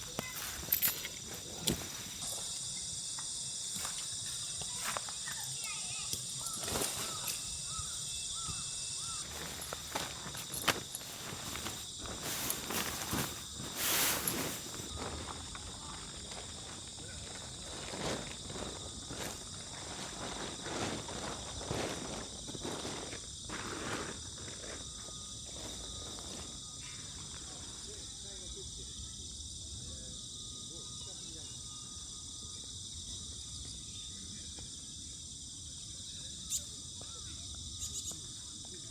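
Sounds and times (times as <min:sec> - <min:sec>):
crickets and insects trilling: 0:00.0 - 0:38.9
light rustles and knocks: 0:06.1 - 0:15.4.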